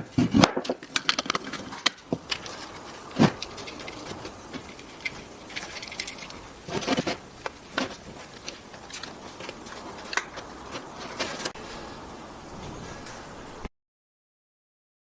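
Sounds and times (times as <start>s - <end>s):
wooden pieces clicking and knocking: 0.0s - 11.6s.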